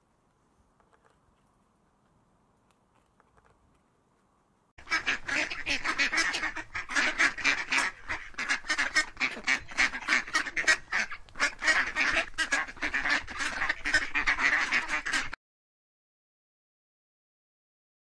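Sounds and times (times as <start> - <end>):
flock of waterfowl calling: 4.8 - 15.4.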